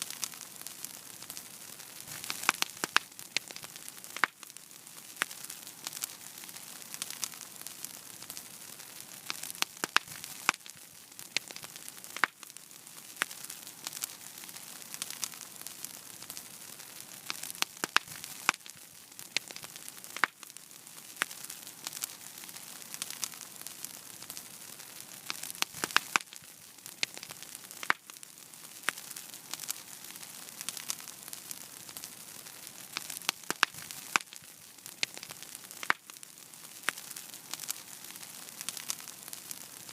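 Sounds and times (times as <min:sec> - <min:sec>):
fire hissing: 0:00.0 - 0:39.9
wood fire crackling: 0:00.0 - 0:39.9.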